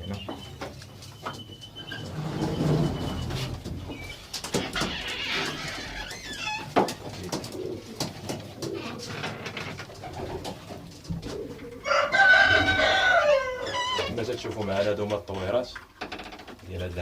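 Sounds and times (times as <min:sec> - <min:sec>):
pigeons cooing: 0:01.4 - 0:05.9, 0:06.6 - 0:14.1.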